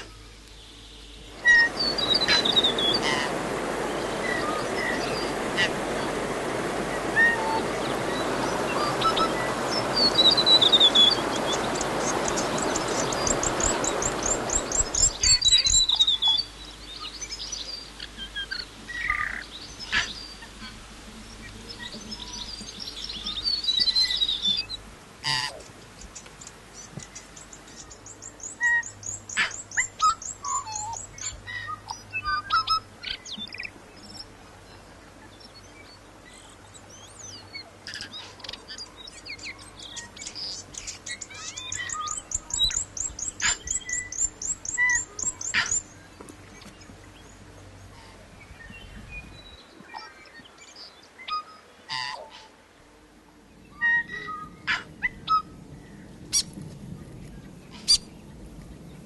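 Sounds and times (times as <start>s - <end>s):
birds chirping: 0.0s - 59.0s
lower bird calls: 6.8s - 20.8s, 37.8s - 46.0s, 53.7s - 56.5s.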